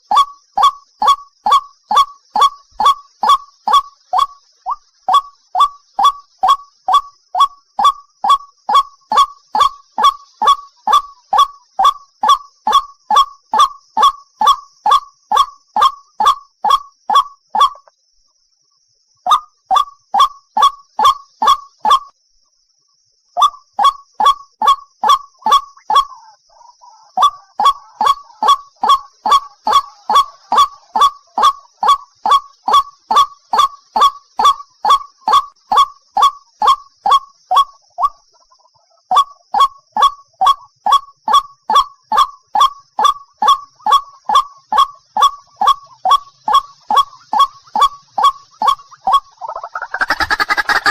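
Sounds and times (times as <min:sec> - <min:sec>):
bird honking calls: 0:27.2 - 0:35.4, 0:43.0 - 0:50.9.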